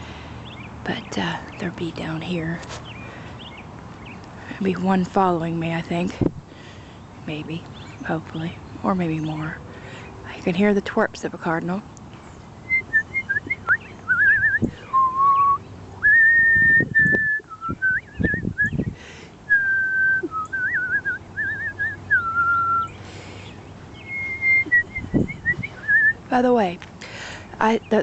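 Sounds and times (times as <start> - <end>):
woman whistling: 12.7 - 18.8, 19.5 - 22.9, 24.0 - 26.2.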